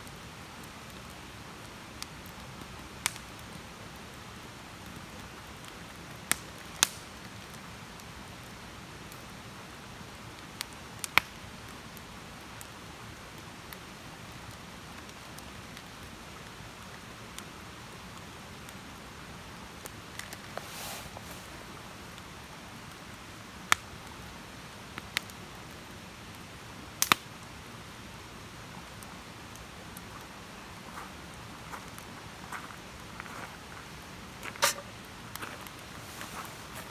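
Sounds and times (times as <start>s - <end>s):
campfire hiss: 0.0s - 36.9s
campfire pops: 2.0s - 3.6s, 5.6s - 7.2s, 10.6s - 11.4s, 19.8s - 23.0s, 23.6s - 23.9s, 27.0s - 27.3s, 33.8s - 36.9s.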